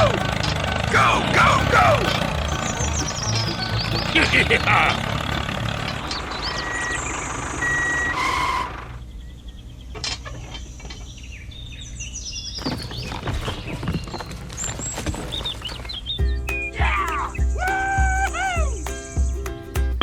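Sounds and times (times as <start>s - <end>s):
low engine rumble: 0.0s - 9.1s
birds chirping: 0.0s - 19.9s
short electronic beeps: 6.0s - 8.7s.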